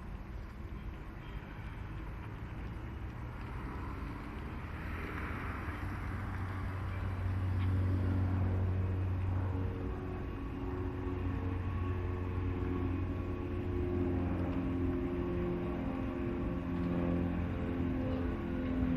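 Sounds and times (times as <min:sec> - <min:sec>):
diesel locomotive engine hum: 0:00.0 - 0:18.9.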